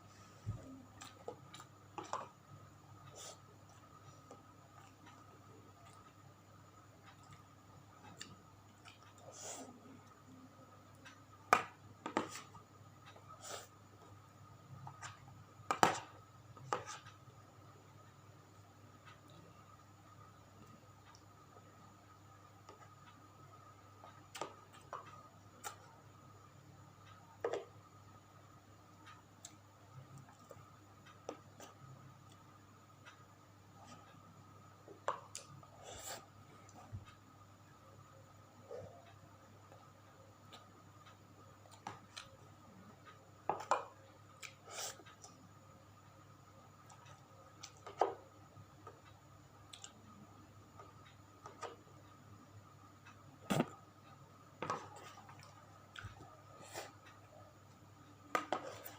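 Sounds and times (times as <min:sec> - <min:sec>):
faint hum: 0:00.0 - 0:58.9
soft chewing: 0:00.6 - 0:02.4, 0:03.0 - 0:11.3, 0:29.0 - 0:37.2, 0:38.6 - 0:45.6, 0:46.7 - 0:52.2, 0:52.9 - 0:58.9
person chewing: 0:49.7 - 0:50.0.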